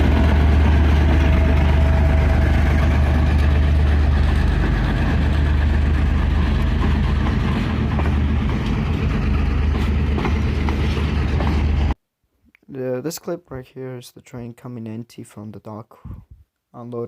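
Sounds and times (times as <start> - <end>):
diesel locomotive engine drone: 0.0 - 12.0.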